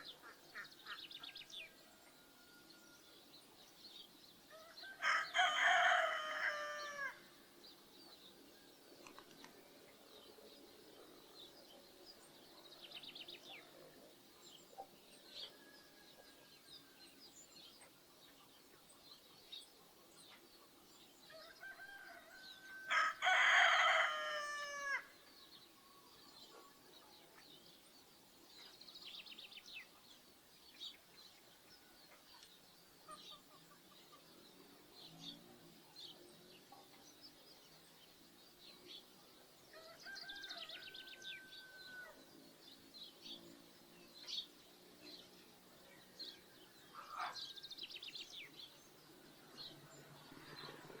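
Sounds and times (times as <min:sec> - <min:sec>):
small birds chirping: 0:00.0 - 0:22.1, 0:25.0 - 0:51.0
rooster crowing: 0:04.5 - 0:07.2, 0:21.3 - 0:25.1.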